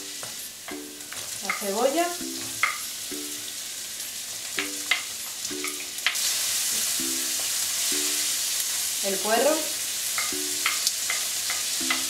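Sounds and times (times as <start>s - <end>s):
onion and garlic sizzling in oil: 0.0s - 12.0s
wooden spoon tapping a pan: 0.1s - 3.3s, 4.6s - 8.3s, 10.2s - 12.0s.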